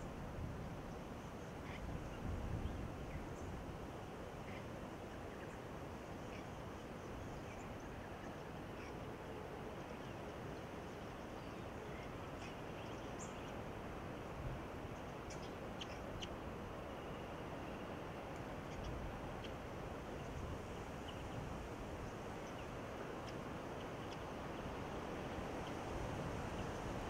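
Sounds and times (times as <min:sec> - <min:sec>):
outdoor background hiss: 0:00.0 - 0:27.0.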